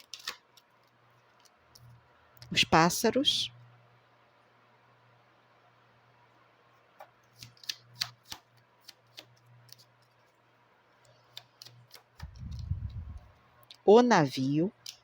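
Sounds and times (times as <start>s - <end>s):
cards clicking and tapping: 0.0s - 0.7s, 7.0s - 10.1s, 11.3s - 13.0s.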